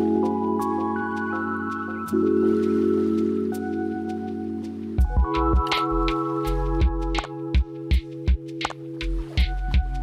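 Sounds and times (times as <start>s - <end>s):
held keyboard chords: 0.0s - 10.0s
steady drum beat: 5.0s - 10.0s.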